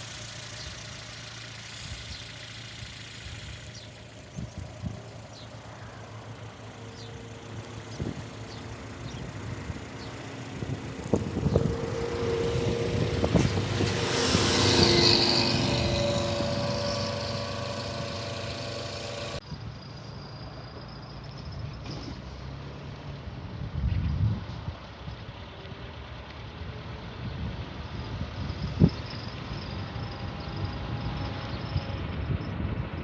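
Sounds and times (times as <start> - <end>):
motor vehicle passing: 0.0 - 19.4.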